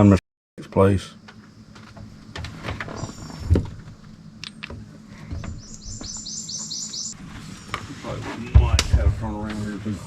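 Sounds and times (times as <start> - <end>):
bird whistling call: 3.0 - 3.5, 5.4 - 7.2.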